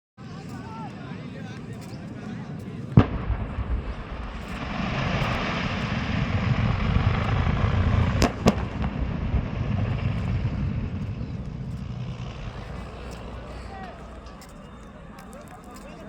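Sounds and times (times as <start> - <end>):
roaring fire: 0.3 - 16.0
sharp bangs of cylinders bursting: 3.0 - 14.3
low rumble: 3.0 - 15.4.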